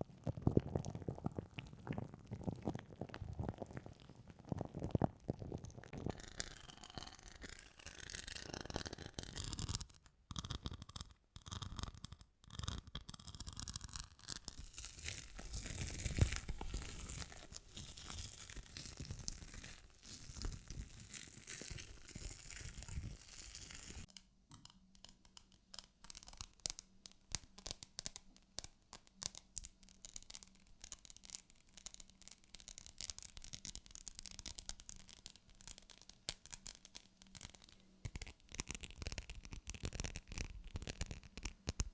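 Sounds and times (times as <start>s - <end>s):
scratching against microphone: 13.6s - 24.1s, 37.4s - 41.9s.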